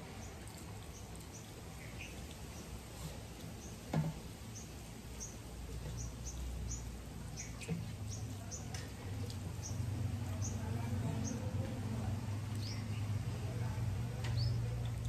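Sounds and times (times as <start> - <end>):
eating by hand from metal plates: 0.0 - 15.0
small birds chirping: 0.0 - 15.0.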